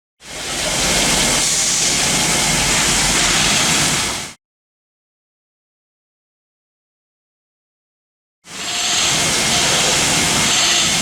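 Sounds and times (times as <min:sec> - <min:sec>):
loud hissing rush: 0:00.2 - 0:04.4, 0:08.5 - 0:11.0.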